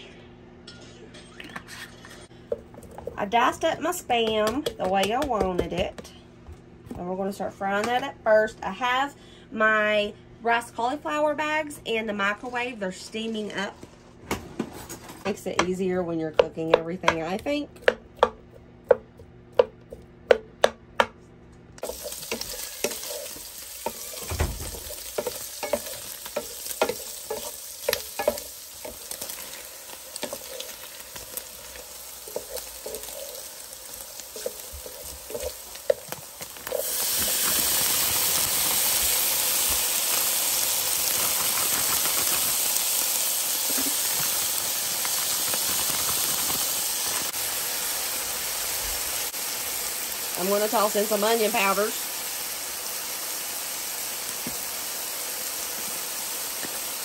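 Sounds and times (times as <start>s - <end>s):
wooden spatula tapping and stirring: 15.5s - 21.1s, 21.8s - 29.3s
meat sizzling in a pan: 21.8s - 57.0s.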